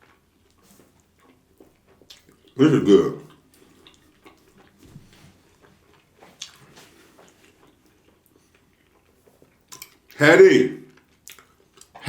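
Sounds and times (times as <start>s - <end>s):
chewing meat: 0.0s - 10.2s, 10.8s - 12.0s
wet mouth clicks and smacks: 0.5s - 2.6s, 3.2s - 4.9s, 5.5s - 10.2s, 11.0s - 12.0s.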